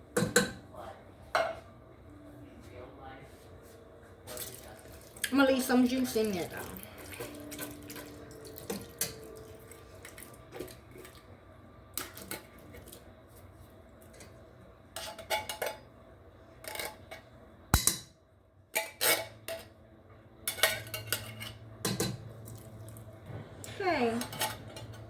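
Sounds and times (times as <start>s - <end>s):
cookware clinking and clattering: 0.2s - 0.6s, 1.3s - 1.6s, 6.5s - 9.6s, 15.0s - 15.9s, 20.5s - 22.4s, 24.1s - 25.0s.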